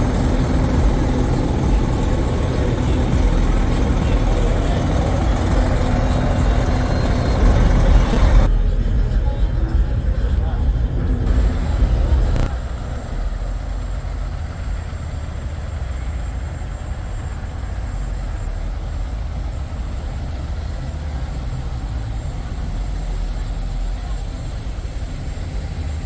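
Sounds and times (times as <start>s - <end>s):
truck engines idling: 0.0s - 26.0s.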